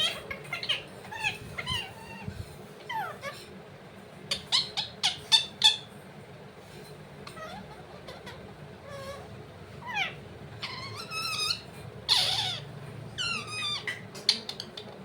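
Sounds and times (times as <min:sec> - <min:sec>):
parrot chirping: 0:00.0 - 0:02.3, 0:04.3 - 0:05.9, 0:07.3 - 0:15.0
parrot squawking: 0:00.0 - 0:02.3, 0:02.9 - 0:03.5, 0:04.3 - 0:05.9, 0:07.2 - 0:14.9.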